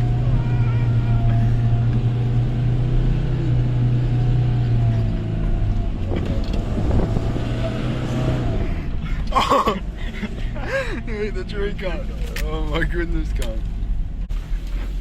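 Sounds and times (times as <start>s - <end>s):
person shouting: 0.0s - 1.9s
vehicle engine running under load: 0.0s - 15.0s.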